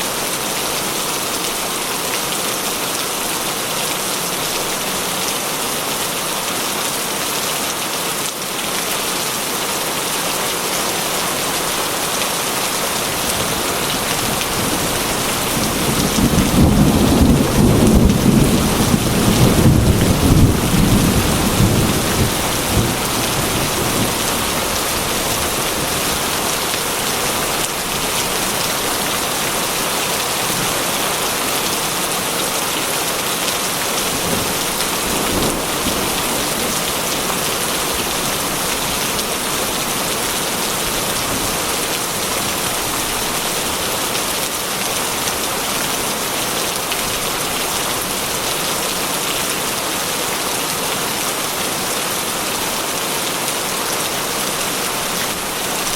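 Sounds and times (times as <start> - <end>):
heavy rain: 0.0 - 55.9
thunder rumble: 13.2 - 26.3, 34.0 - 39.1.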